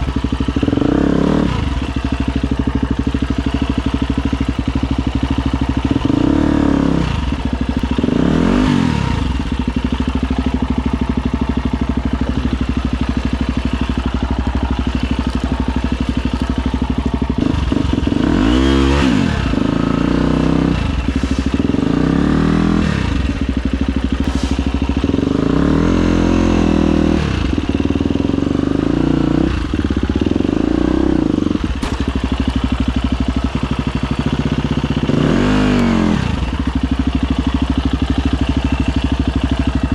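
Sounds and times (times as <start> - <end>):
dirt bike engine revving: 0.0 - 2.3, 4.4 - 10.4, 17.3 - 34.3, 35.0 - 36.6.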